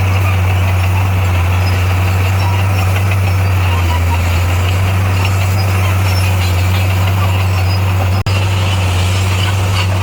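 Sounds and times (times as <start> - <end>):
heavy diesel engine running: 0.0 - 10.0.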